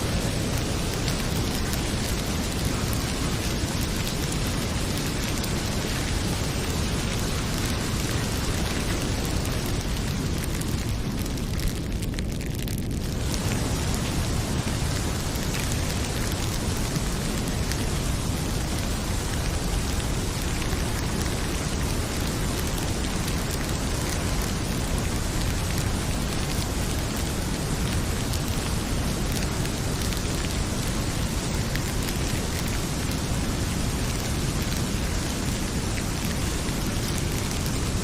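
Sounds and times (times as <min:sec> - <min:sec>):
heavy rain pouring: 0:00.0 - 0:38.0
wood fire popping: 0:00.1 - 0:27.5.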